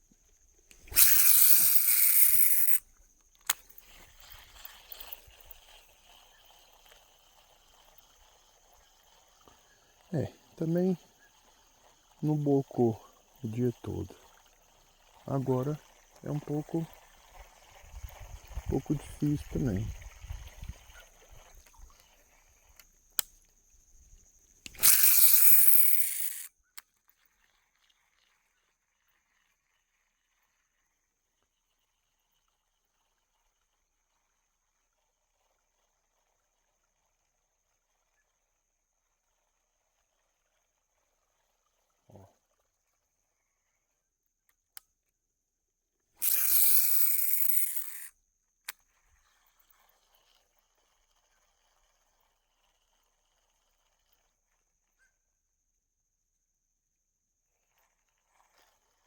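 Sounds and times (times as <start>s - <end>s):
fishing line running off reel: 0.3s - 43.9s, 46.2s - 55.2s, 57.5s - 59.0s
reel click: 0.7s - 12.4s, 20.7s - 23.6s, 24.6s - 27.4s, 46.2s - 54.3s.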